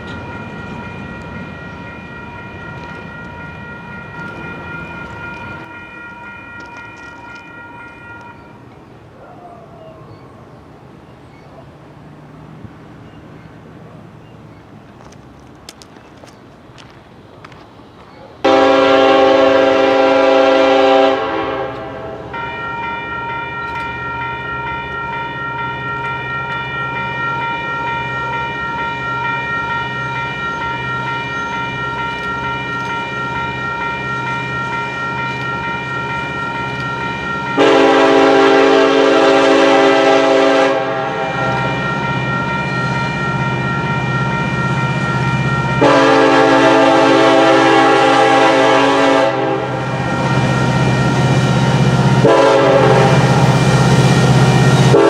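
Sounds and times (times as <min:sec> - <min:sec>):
train air horn blasts: 0:00.0 - 0:08.6, 0:18.5 - 0:55.0
steady ringing tone: 0:22.4 - 0:37.7.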